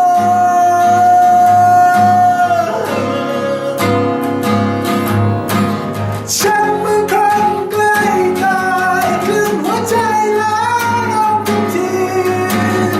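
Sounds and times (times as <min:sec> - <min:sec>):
strummed acoustic guitar: 0:00.0 - 0:12.9
steady bass pulse: 0:04.5 - 0:06.2.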